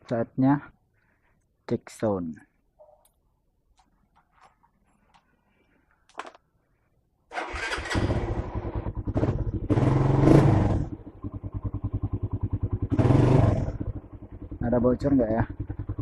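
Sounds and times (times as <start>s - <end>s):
motorcycle engine starting and idling: 7.3s - 16.0s.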